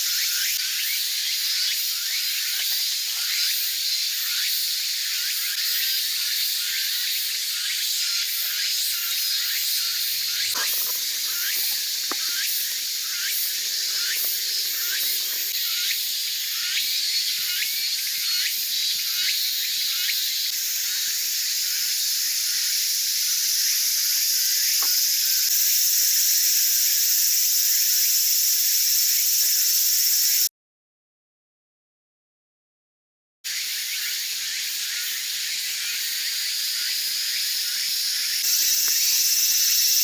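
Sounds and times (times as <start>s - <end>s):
wood fire hissing: 9.5s - 15.6s.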